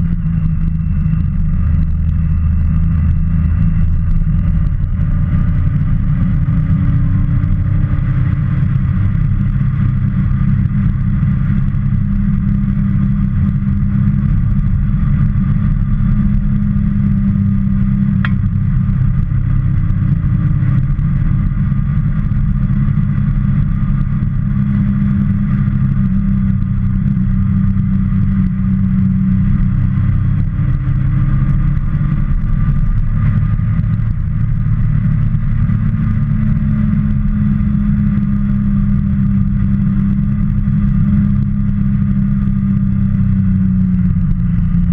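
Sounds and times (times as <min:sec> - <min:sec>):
motorcycle engine running: 0:00.0 - 0:44.9
sharp tick: 0:18.2 - 0:18.6.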